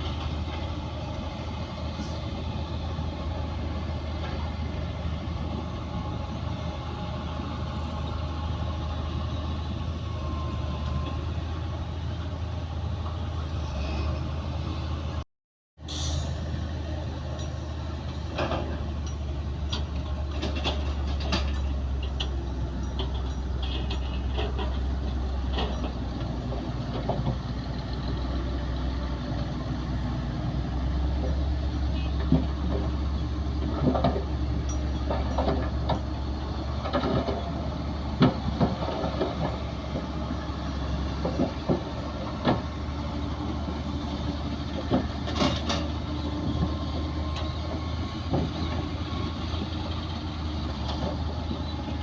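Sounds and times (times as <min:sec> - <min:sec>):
bulldozer diesel engine running: 0:00.0 - 0:15.2, 0:15.9 - 0:52.0
metallic clanks from tracks: 0:17.2 - 0:28.2, 0:31.2 - 0:43.8, 0:44.6 - 0:52.0.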